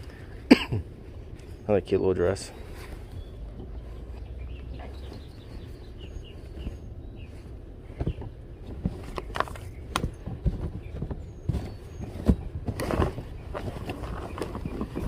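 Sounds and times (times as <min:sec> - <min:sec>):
low steady rumble: 0:00.0 - 0:15.0
rummaging knocks and rustles: 0:04.8 - 0:15.0.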